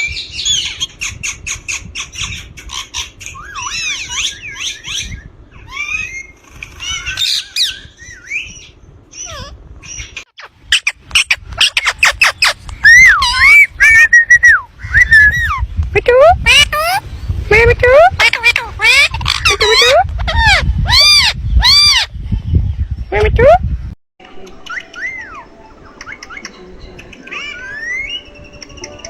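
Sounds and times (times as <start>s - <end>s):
parakeet chattering and squawking: 9.1s - 13.8s, 16.4s - 17.0s, 18.1s - 22.1s, 27.2s - 28.3s.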